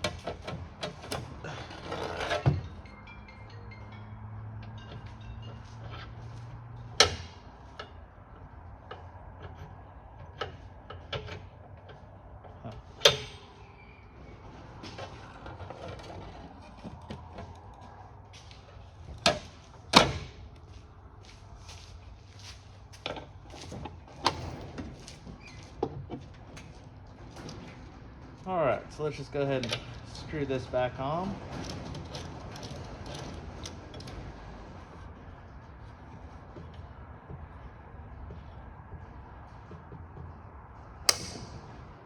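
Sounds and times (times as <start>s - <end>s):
metal knocks: 41.1s - 42.0s.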